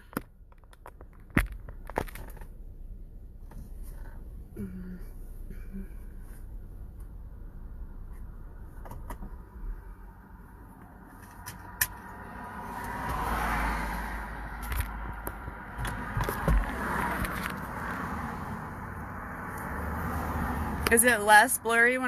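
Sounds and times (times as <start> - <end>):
low steady rumble: 0.0 - 12.8
car passing by: 12.0 - 20.9.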